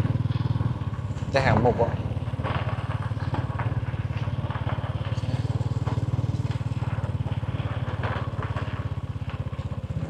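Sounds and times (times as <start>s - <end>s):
small motorcycle engine puttering: 0.0s - 10.0s.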